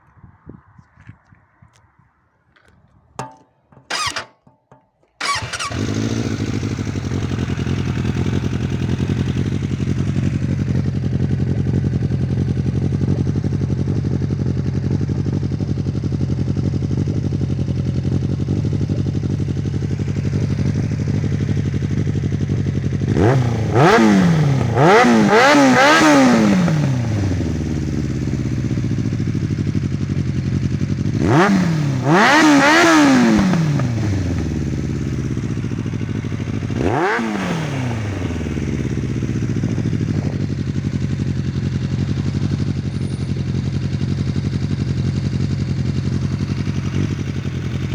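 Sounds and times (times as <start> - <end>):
starter whir: 3.2 - 10.3
motorcycle engine idling: 3.2 - 47.9
motorcycle engine revving: 3.2 - 47.9
short clicks: 3.8 - 5.8.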